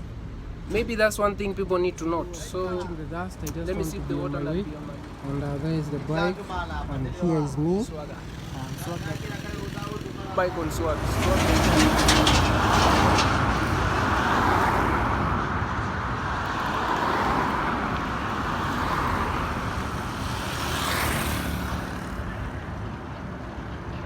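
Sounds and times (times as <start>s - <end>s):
passing motor vehicles: 0.0s - 24.0s
vehicle passing close: 7.3s - 22.6s.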